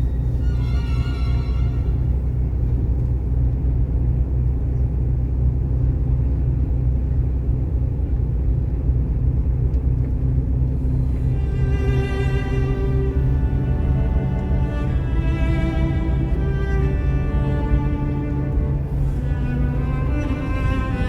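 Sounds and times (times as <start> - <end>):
background string music: 0.0 - 3.8, 9.9 - 21.0
bus engine and road rumble: 0.0 - 21.0.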